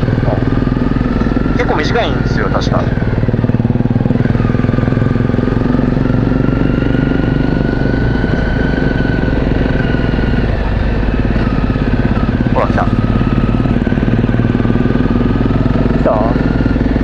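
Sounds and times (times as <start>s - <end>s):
faint whine: 0.0s - 3.6s
motorcycle engine running: 0.0s - 17.0s.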